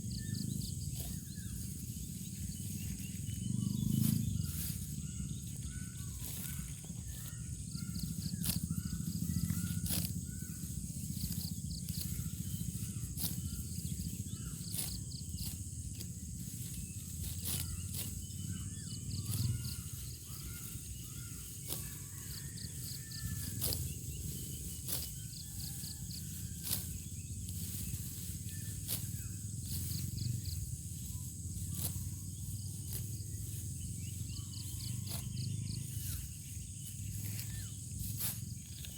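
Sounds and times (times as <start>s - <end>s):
insects chirping: 0.0s - 38.9s
wind rumble on microphone: 0.0s - 38.9s
rice stalks snapping: 8.2s - 18.4s, 23.3s - 30.1s, 37.1s - 38.9s.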